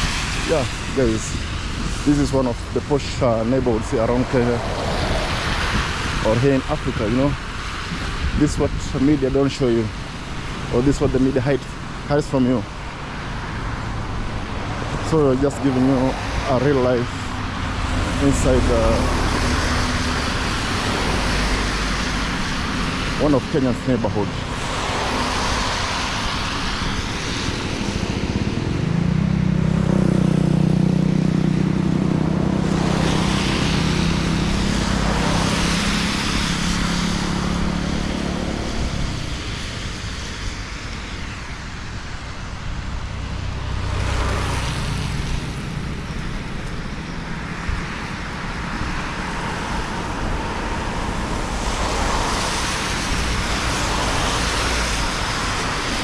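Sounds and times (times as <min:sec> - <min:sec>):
cars passing with tyre hiss: 0:00.0 - 0:56.0
vehicle engine droning: 0:10.6 - 0:56.0.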